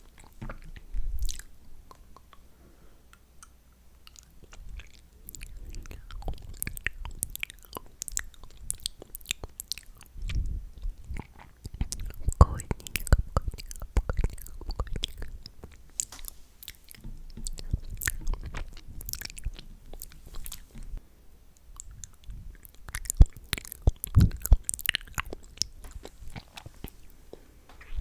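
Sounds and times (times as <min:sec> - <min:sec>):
wet mouth clicks and smacks: 0:21.7 - 0:27.0.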